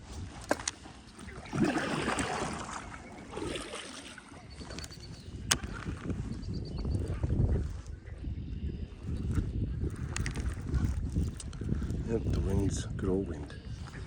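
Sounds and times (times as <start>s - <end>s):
water sloshing against kayak hull: 0.1s - 6.3s.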